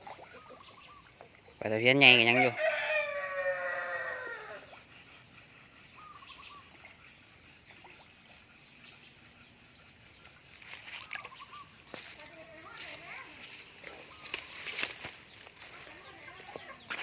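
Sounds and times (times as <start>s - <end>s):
faint bird chirps: 0.0s - 1.6s, 5.7s - 9.5s, 10.5s - 17.0s
rooster crowing: 2.3s - 4.7s.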